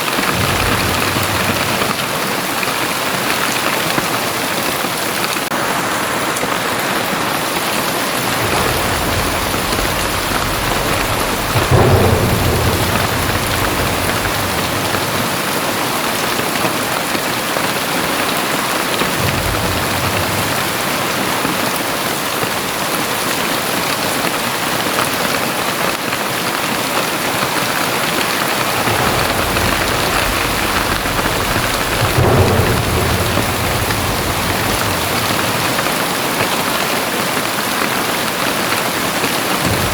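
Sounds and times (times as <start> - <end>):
very heavy rain pouring: 0.0 - 39.9
long deep rumbles: 0.1 - 3.1, 8.0 - 16.6, 19.0 - 22.0, 28.2 - 36.9.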